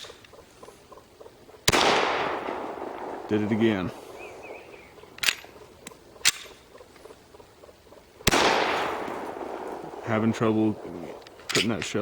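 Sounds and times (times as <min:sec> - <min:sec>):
sharp pistol clicks: 0:01.6 - 0:03.4, 0:04.1 - 0:06.6, 0:08.2 - 0:10.0
pistol shot with echo: 0:01.6 - 0:05.6, 0:08.2 - 0:11.7.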